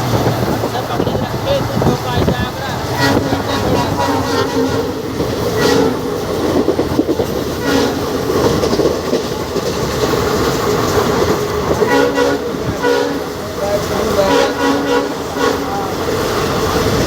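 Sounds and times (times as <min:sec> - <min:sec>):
diesel train rumbling: 0:00.0 - 0:17.0
wheels clattering over rail joints: 0:00.0 - 0:17.0.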